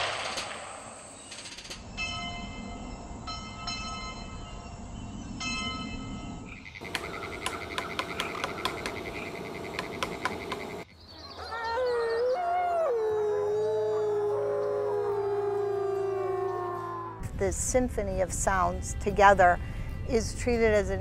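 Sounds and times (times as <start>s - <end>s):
frogs trilling and clicking: 6.5s - 10.9s.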